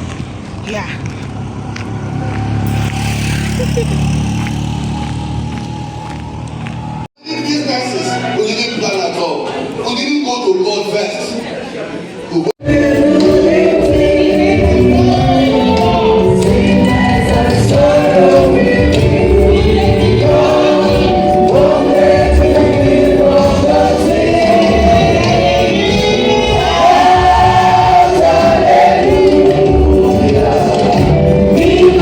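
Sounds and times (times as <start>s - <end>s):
gospel choir singing: 12.6s - 32.0s
instrumental backing: 12.6s - 32.0s.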